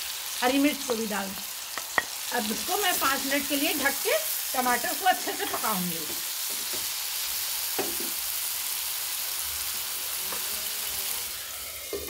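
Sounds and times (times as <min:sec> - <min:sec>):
vegetables sizzling in hot oil: 0:00.0 - 0:12.0
spatula knocking on pan: 0:07.8 - 0:08.2.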